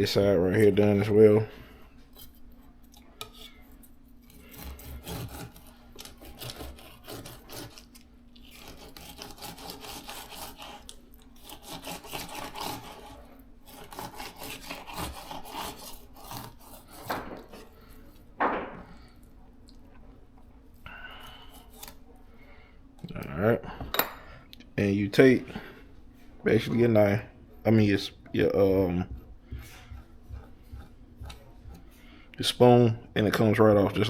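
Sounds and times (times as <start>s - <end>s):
knife sawing through fish: 4.2s - 18.0s, 21.3s - 22.0s, 29.6s - 32.0s.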